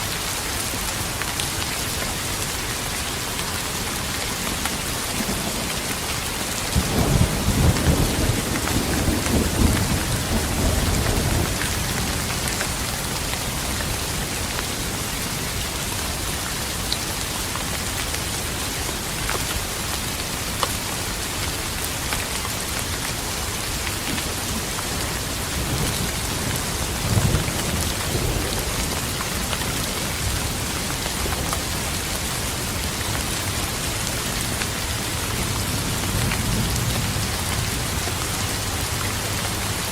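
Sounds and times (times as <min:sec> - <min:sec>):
heavy rain falling: 0:00.0 - 0:39.9
rolling thunder: 0:06.7 - 0:12.7.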